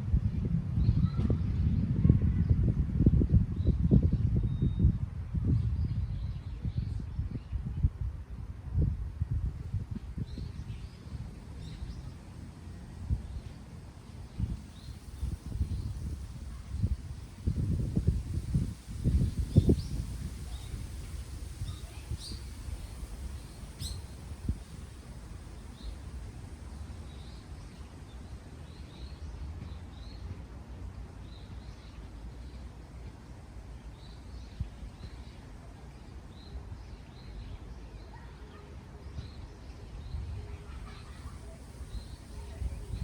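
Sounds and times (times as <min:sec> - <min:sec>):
wind rumble on microphone: 0:00.0 - 0:30.2, 0:39.0 - 0:43.0
songbirds chirping: 0:09.9 - 0:43.0.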